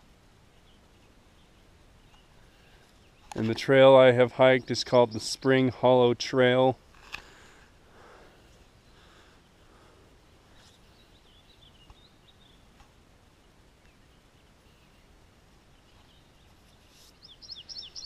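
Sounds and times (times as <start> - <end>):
faint bird chirps: 8.4 - 18.0.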